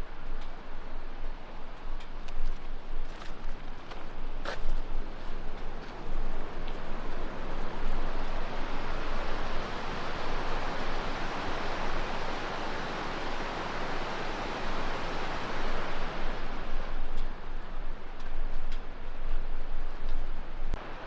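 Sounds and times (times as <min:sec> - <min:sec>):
river water rushing: 0:05.8 - 0:16.8, 0:20.8 - 0:21.0.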